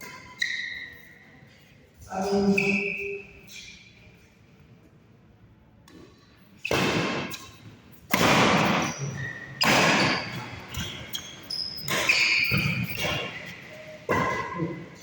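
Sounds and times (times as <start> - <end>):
shoe squeaks: 0.0 - 4.0, 8.6 - 14.6
racket striking shuttlecock: 5.9 - 9.0, 9.6 - 11.0, 11.8 - 13.5, 14.1 - 14.6.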